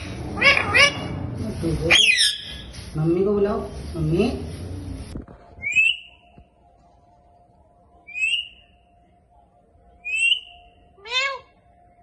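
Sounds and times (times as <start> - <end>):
faint steady hum: 3.6 - 12.0
parakeet rising whistles: 5.6 - 6.2.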